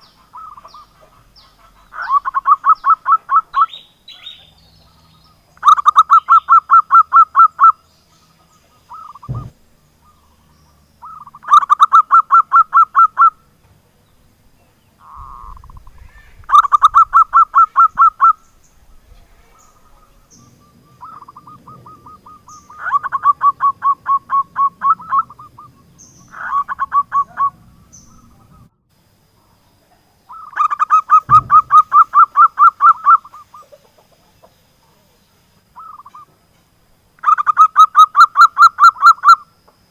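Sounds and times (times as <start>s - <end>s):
dove cooing: 0.0s - 4.6s, 8.7s - 10.4s, 15.0s - 28.7s, 30.3s - 34.5s
low knocks: 9.2s - 9.6s, 31.3s - 32.0s.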